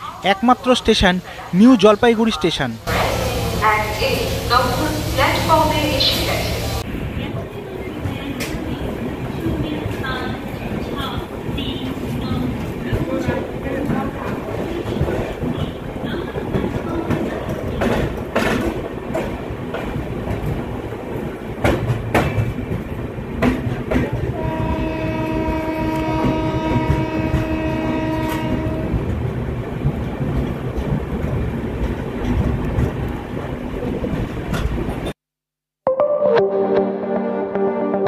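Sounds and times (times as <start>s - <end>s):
passenger train rumbling: 0.0s - 35.2s
locomotive horn blast: 24.4s - 29.0s.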